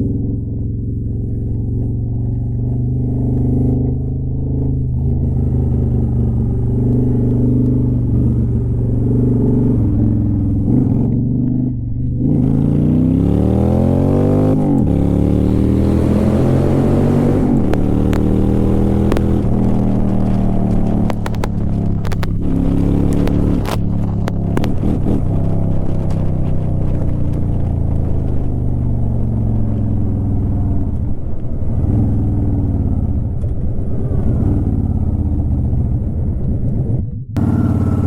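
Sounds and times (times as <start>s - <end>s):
motorcycle exhaust accelerating: 0.0s - 38.0s
sharp clicks: 17.3s - 28.1s.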